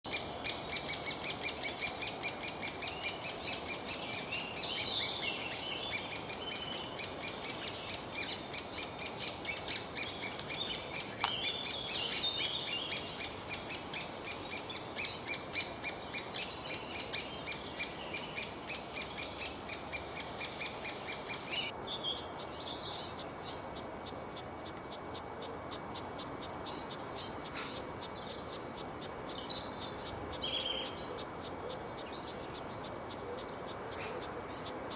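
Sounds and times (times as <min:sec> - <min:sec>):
birds chirping and singing: 0:00.1 - 0:34.9.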